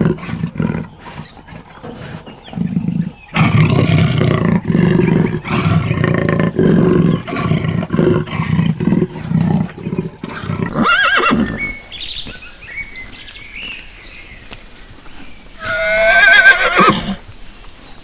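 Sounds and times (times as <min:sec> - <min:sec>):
big cat deep roars: 0:00.0 - 0:10.8
high wavering animal calls: 0:10.7 - 0:17.2.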